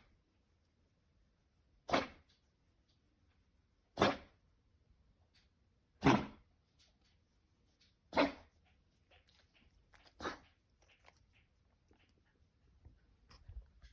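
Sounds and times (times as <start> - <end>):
dog coughing: 6.0 - 6.4, 8.1 - 8.4, 10.2 - 10.4.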